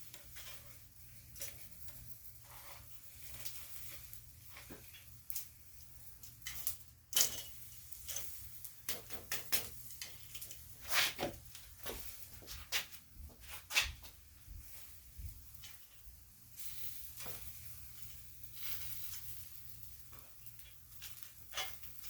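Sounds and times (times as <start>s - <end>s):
knocks and clicks at grill: 8.9s - 10.6s.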